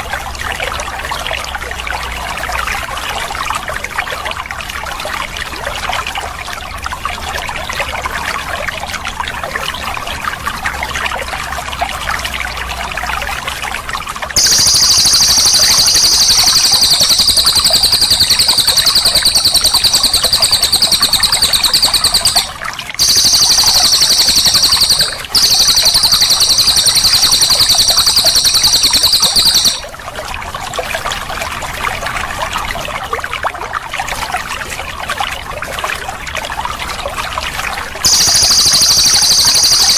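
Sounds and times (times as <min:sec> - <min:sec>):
running water trickling: 0:00.0 - 0:39.9
bird rapid rolling trill: 0:14.4 - 0:29.9, 0:38.0 - 0:39.9.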